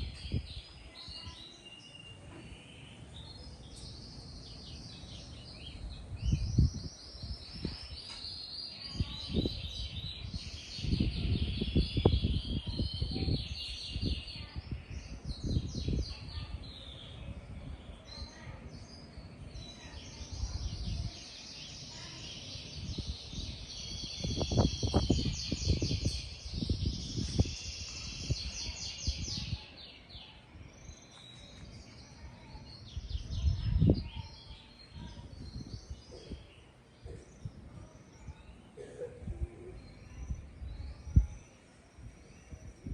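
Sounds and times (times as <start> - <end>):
wind buffeting microphone: 0.0 - 1.5, 3.0 - 42.9
small birds chirping: 0.0 - 42.9.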